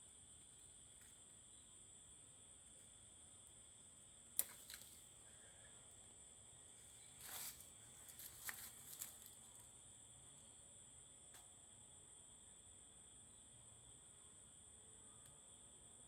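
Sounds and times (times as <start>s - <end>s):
handling rustling noise: 7.2s - 9.4s.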